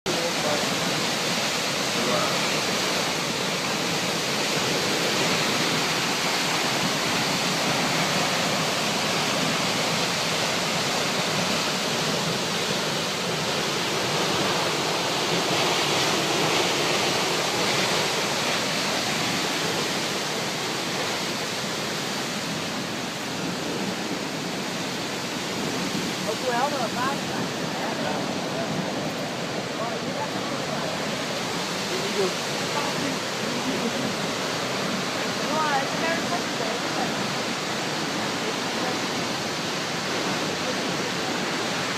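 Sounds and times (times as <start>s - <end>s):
waterfall rushing: 0.1s - 41.9s.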